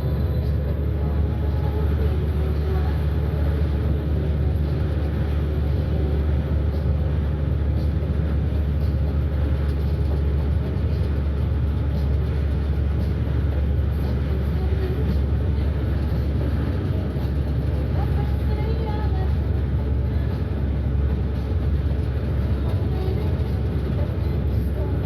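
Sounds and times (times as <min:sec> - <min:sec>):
bus engine and road rumble: 0:00.0 - 0:25.0.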